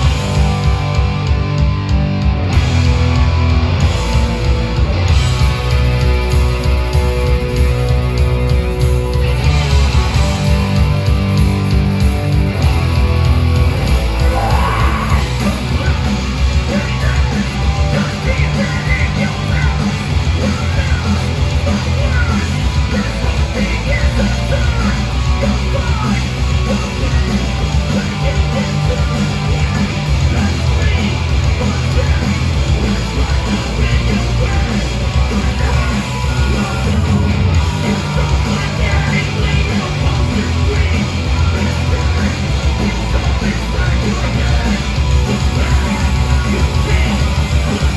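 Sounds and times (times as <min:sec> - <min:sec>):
drums: 0:00.0 - 0:47.9
electric guitars: 0:00.0 - 0:47.9
shouted vocals: 0:13.7 - 0:17.5.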